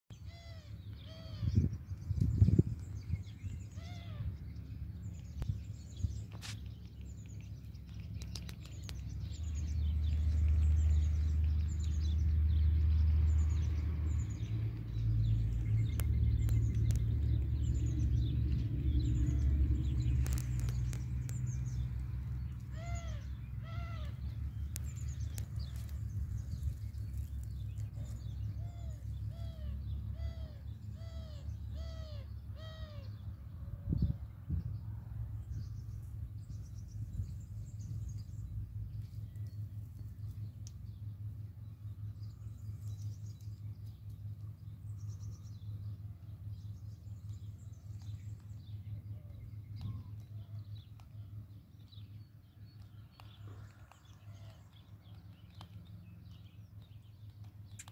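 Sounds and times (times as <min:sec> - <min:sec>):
low rumble: 0:00.3 - 0:57.6
arched bird call notes: 0:28.0 - 0:33.2.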